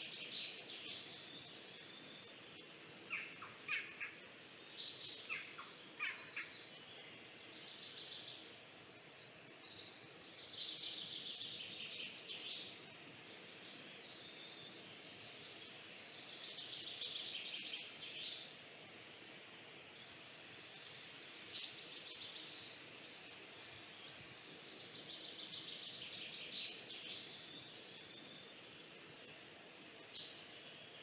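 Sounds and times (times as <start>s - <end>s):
faint steady hiss: 0.0s - 31.0s
bird chirping and trilling: 1.4s - 4.2s, 4.8s - 6.7s, 30.0s - 30.6s.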